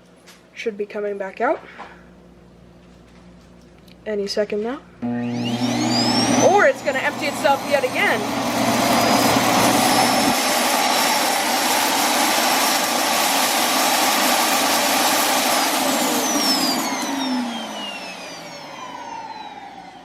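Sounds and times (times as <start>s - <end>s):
vacuum dock suction motor: 5.0s - 20.0s.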